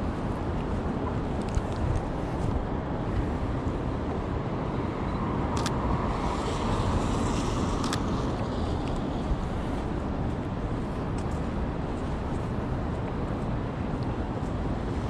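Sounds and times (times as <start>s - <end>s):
city traffic noise: 0.0s - 15.0s
car passing: 5.0s - 9.4s.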